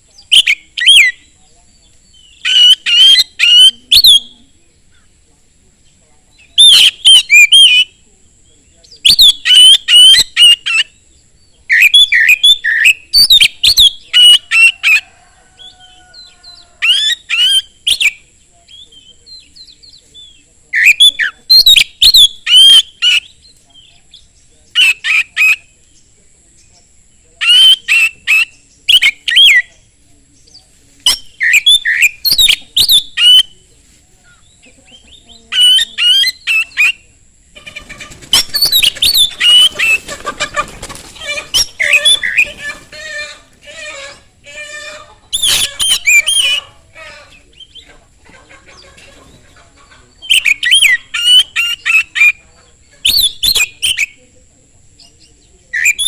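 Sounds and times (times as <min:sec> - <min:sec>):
magpie-robin singing whistled phrases: 0:00.2 - 0:01.3, 0:02.1 - 0:04.3, 0:06.4 - 0:07.9, 0:08.8 - 0:11.0, 0:11.7 - 0:14.8, 0:16.8 - 0:25.6, 0:31.1 - 0:33.5, 0:34.4 - 0:37.0, 0:50.2 - 0:52.4, 0:53.0 - 0:54.2, 0:55.7 - 0:56.0.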